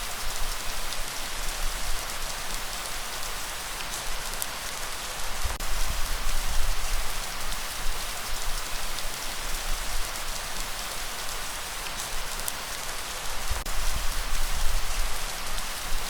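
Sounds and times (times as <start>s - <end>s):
heavy rain with drop hits: 0.0s - 16.0s.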